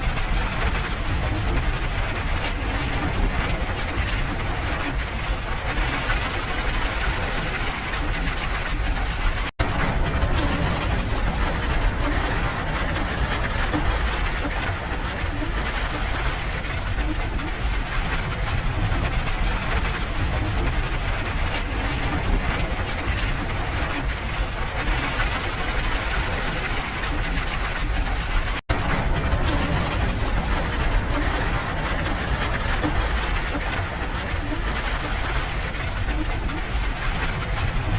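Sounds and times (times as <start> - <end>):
steady rain: 0.0 - 37.9.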